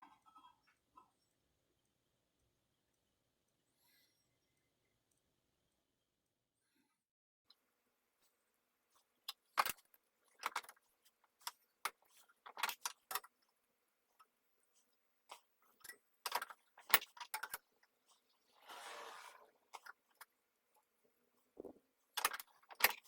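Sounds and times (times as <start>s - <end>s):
scraping rasp: 18.5s - 19.9s.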